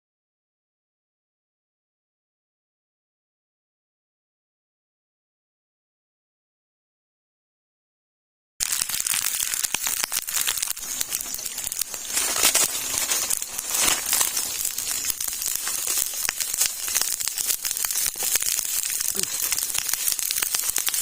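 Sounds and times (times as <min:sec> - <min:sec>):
dense crackling and rustling: 0:08.6 - 0:21.0.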